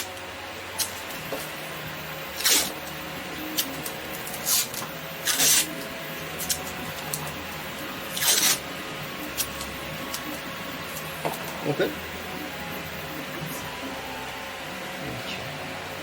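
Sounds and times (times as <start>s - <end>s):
adhesive tape rasping: 3.6s - 5.8s, 8.1s - 8.6s.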